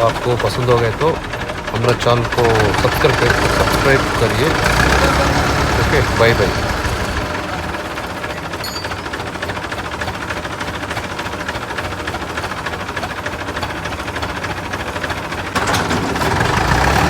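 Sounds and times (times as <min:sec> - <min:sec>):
forklift engine chugging: 0:00.0 - 0:17.0.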